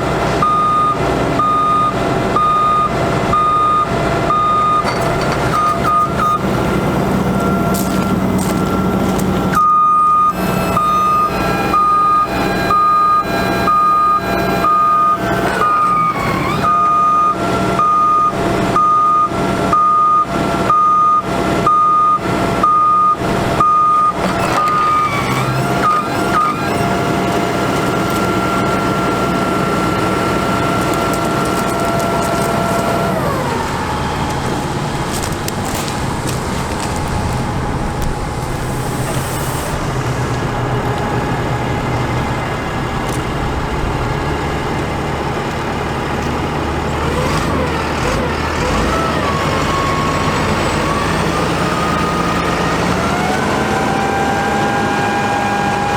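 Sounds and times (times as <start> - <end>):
diesel truck engine running: 0.0 - 55.9
reversing alarm beeping: 0.4 - 44.8
steady whine: 4.6 - 16.8, 24.2 - 47.0.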